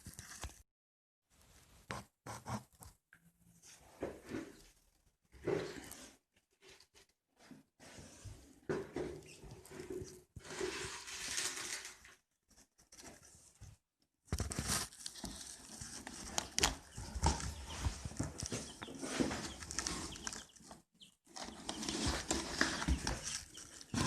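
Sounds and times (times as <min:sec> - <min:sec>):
chicks rustling and pattering: 0:05.4 - 0:24.0.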